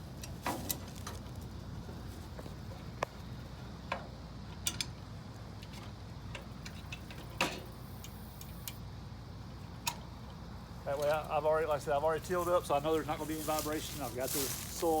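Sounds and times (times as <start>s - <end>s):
light metal clicks and knocks: 3.8s - 5.0s.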